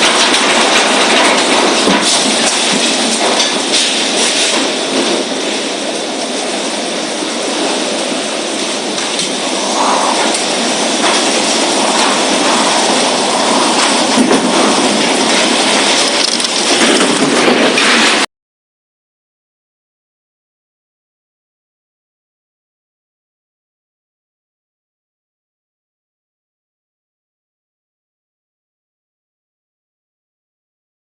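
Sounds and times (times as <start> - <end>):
heavy rain: 0.0 - 18.3
strong wind: 0.0 - 18.3.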